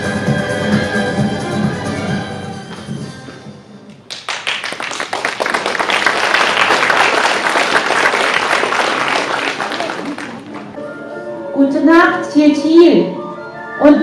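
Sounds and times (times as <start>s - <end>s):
music: 0.0s - 4.3s, 8.5s - 14.0s
audience applauding: 4.1s - 10.8s.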